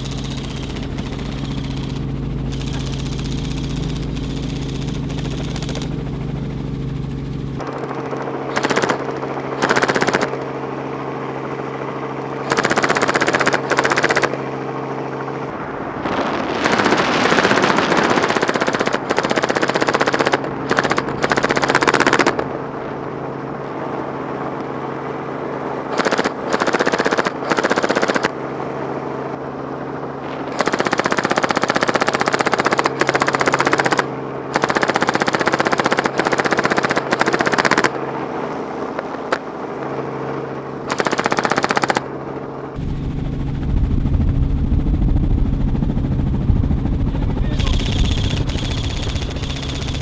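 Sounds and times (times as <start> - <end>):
mechanical hum: 0.0 - 7.7
low rumble: 42.7 - 50.0
airsoft guns firing: 47.6 - 50.0.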